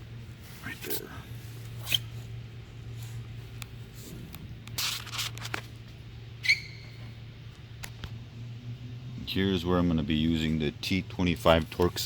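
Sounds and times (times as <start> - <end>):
steady low hum: 0.0 - 12.0
short high squeak: 6.4 - 7.1.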